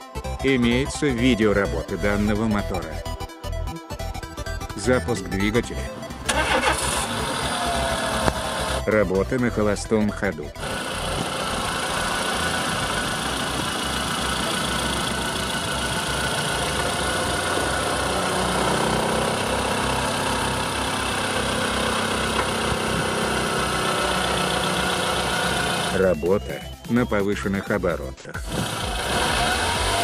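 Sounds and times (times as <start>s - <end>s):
car engine idling: 5.7s - 8.9s, 10.6s - 26.0s, 28.4s - 30.0s.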